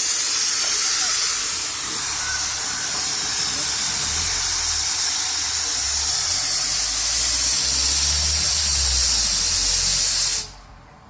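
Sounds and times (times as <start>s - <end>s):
steam hissing loudly: 0.0s - 10.8s.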